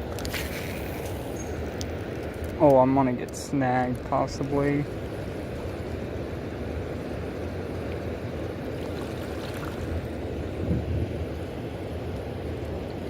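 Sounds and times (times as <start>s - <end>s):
river water rushing: 4.8s - 13.0s.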